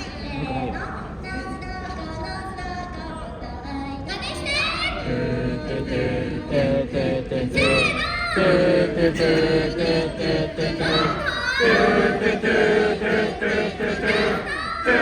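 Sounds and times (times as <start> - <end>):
group of voices chanting: 5.0 - 15.0.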